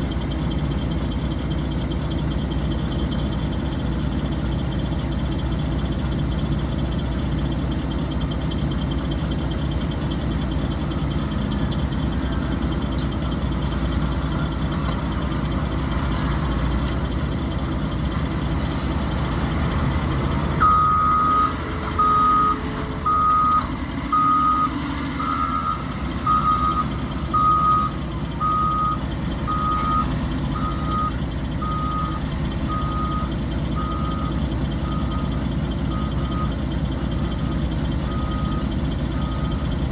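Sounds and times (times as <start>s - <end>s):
heavy diesel engine running: 0.0s - 39.9s
backup alarm beeping: 20.6s - 35.3s.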